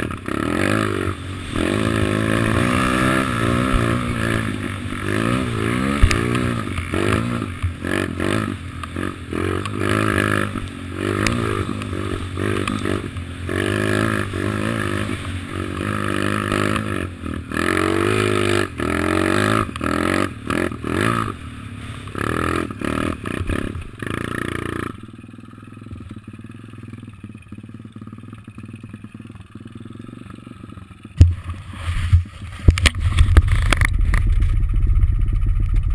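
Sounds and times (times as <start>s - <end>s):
small motorbike engine revving: 0.0s - 25.1s.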